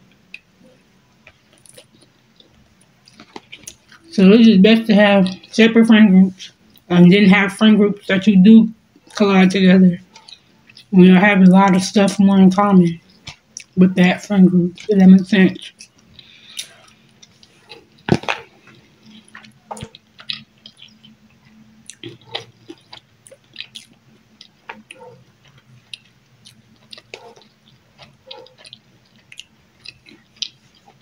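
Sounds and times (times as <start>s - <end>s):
faint low hum: 0.0s - 31.0s
wet chewing and lip smacks: 0.1s - 4.1s, 10.0s - 10.9s, 13.1s - 13.8s, 15.6s - 31.0s.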